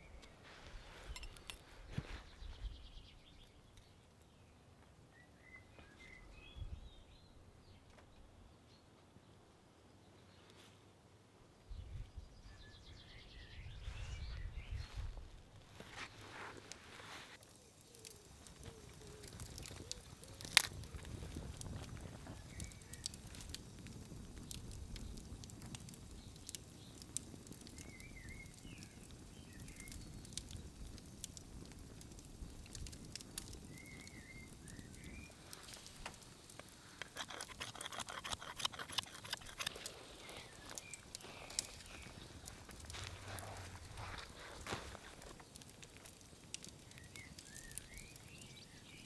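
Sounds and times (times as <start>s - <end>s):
faint outdoor ambience: 0.0s - 49.0s
small crackles and clicks: 15.7s - 49.0s.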